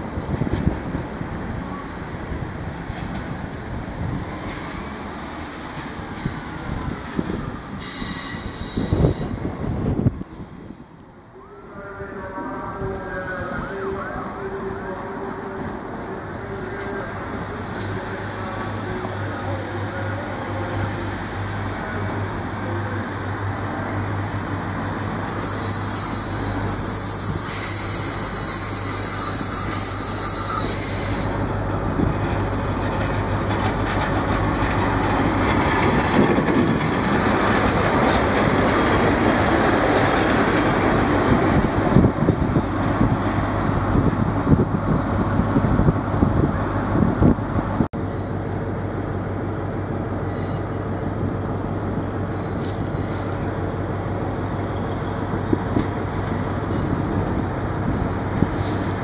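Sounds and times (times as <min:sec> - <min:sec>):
high-pitched wheel squeal: 0:07.8 - 0:09.3, 0:25.3 - 0:31.5.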